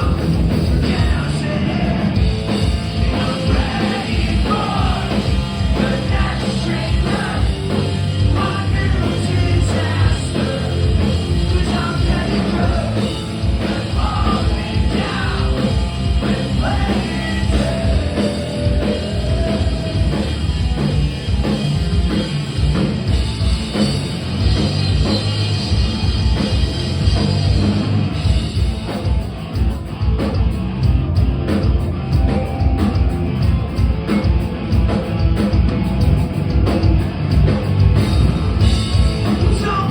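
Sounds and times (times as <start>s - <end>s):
bass: 0.0s - 39.9s
distorted guitars: 0.0s - 39.9s
drums: 0.0s - 39.9s
shouted singing: 3.0s - 20.4s.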